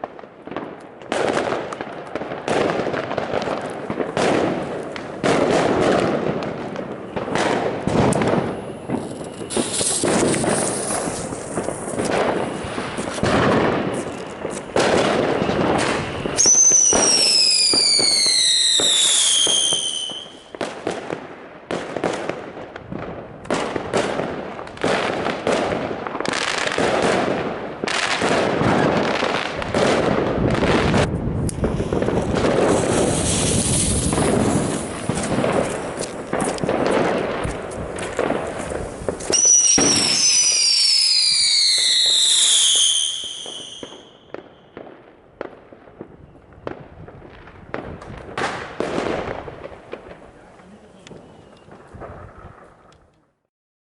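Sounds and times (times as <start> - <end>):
spinning fireworks hissing and crackling: 0.0 - 52.9
firework whistle falling in pitch: 13.8 - 20.5, 39.3 - 44.2.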